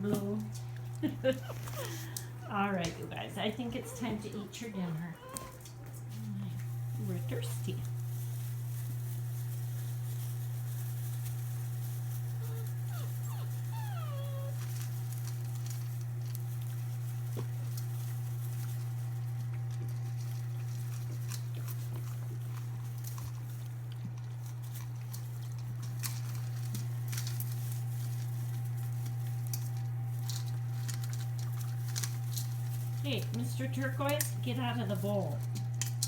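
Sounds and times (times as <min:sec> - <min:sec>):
puppies eating and lapping: 0:00.0 - 0:36.0
steady low hum: 0:00.0 - 0:36.0
puppy whimper: 0:03.6 - 0:05.7, 0:12.4 - 0:14.8.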